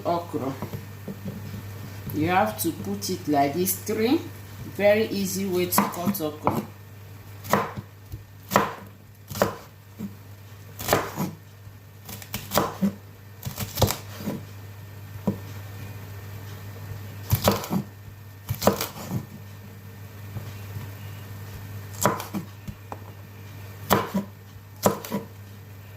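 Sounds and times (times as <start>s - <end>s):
knife chopping on cutting board: 5.7s - 6.7s, 7.4s - 10.2s, 10.8s - 11.4s, 12.1s - 14.4s, 17.3s - 17.9s, 18.5s - 19.3s, 21.9s - 23.1s, 23.8s - 25.3s.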